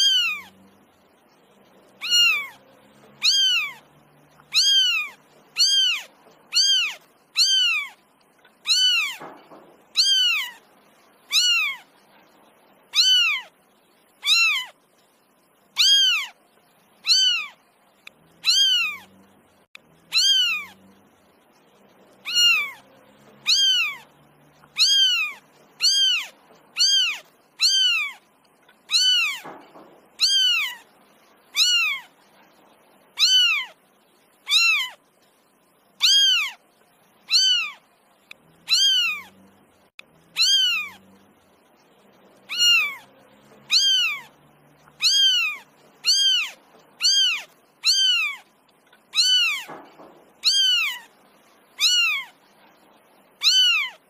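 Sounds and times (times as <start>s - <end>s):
kitten meowing: 0.0s - 0.5s, 2.0s - 2.6s, 3.2s - 8.0s, 8.6s - 10.6s, 11.3s - 11.9s, 12.9s - 13.5s, 14.2s - 14.8s, 15.8s - 16.4s, 17.0s - 17.6s, 18.4s - 19.1s, 20.1s - 20.8s, 22.2s - 24.1s, 24.7s - 28.2s, 28.9s - 30.8s, 31.5s - 32.1s, 33.2s - 33.8s, 34.4s - 35.0s, 36.0s - 36.6s, 37.3s - 37.8s, 38.6s - 39.4s, 40.3s - 41.0s, 42.5s - 44.4s, 45.0s - 48.4s, 49.1s - 49.8s, 50.4s - 51.1s, 51.8s - 52.4s, 53.4s - 54.0s.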